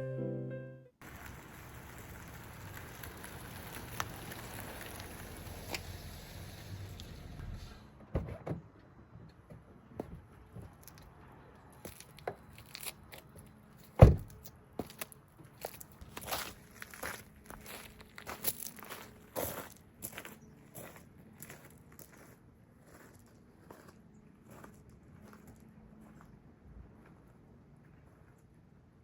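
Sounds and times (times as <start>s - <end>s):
loud thump: 14.0s - 14.3s.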